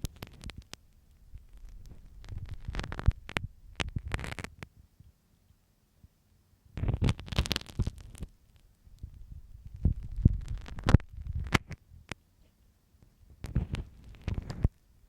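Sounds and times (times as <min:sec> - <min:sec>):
pin scraping near microphone: 0:01.4 - 0:04.6.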